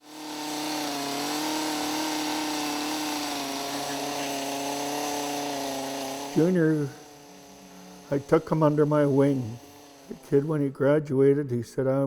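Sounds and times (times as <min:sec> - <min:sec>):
power tool running steadily: 0:00.0 - 0:10.7.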